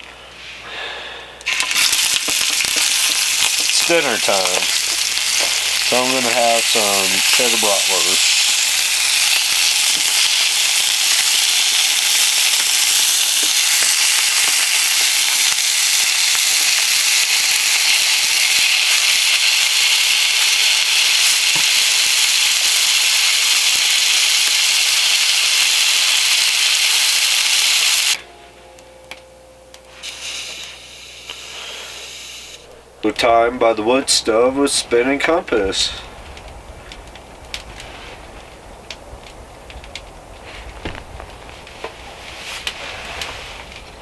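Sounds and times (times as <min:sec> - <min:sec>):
sausage sizzling in a pan: 0:01.5 - 0:28.2, 0:30.0 - 0:32.7.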